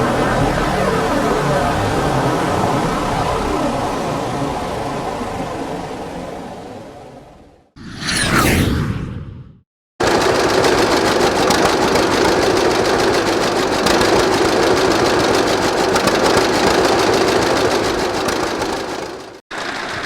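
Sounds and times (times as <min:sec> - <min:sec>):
tractor engine running: 0:10.0 - 0:20.0.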